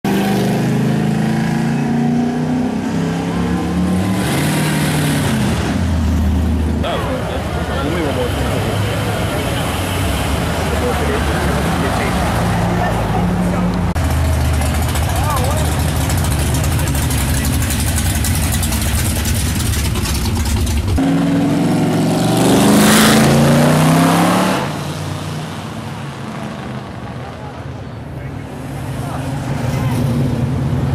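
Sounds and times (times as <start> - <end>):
car engines driving past: 0.1 - 30.9
deep pulsing engine rumble: 13.7 - 21.0.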